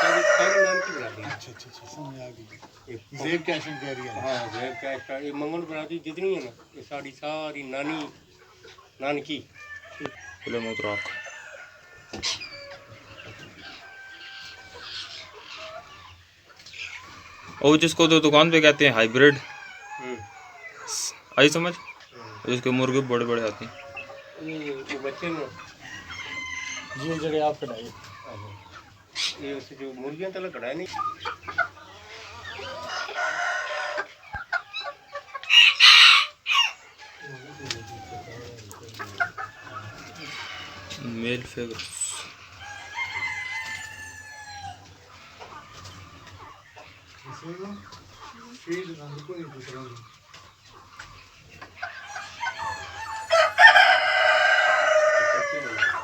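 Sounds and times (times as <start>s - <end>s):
rooster crowing: 0.0s - 1.3s, 3.2s - 5.4s, 9.6s - 12.6s, 22.4s - 27.6s, 35.5s - 38.5s, 42.6s - 44.8s, 52.0s - 56.0s
chickens clucking: 0.0s - 56.0s.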